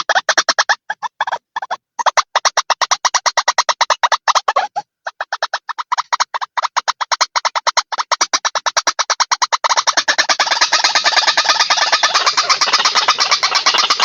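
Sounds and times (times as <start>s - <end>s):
bird short sharp repeated calls: 3.8s - 6.7s, 9.2s - 14.0s.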